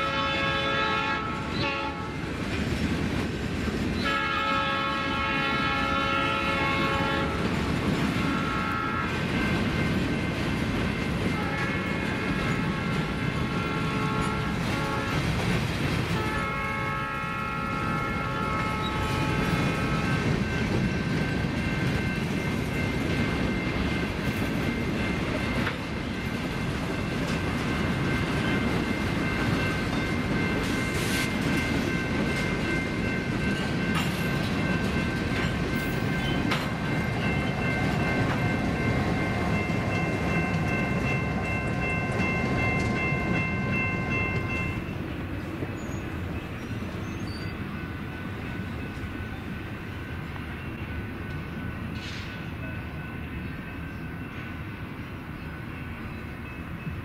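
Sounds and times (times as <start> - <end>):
locomotive horn blasts: 0.0 - 2.2, 4.0 - 7.4, 8.3 - 9.2, 11.3 - 15.3, 16.1 - 20.3
freight train rolling past: 0.0 - 57.0.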